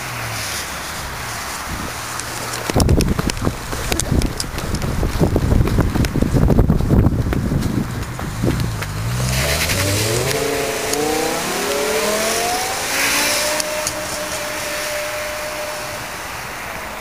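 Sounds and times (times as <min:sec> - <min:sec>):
car engine accelerating: 0:07.8 - 0:17.0.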